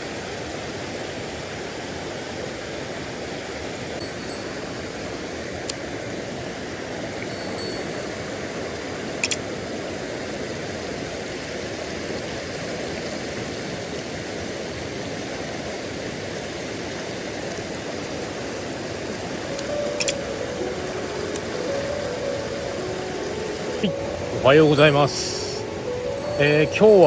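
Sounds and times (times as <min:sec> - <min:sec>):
stream water flowing: 0:00.0 - 0:27.0
faint clicks: 0:19.1 - 0:20.3.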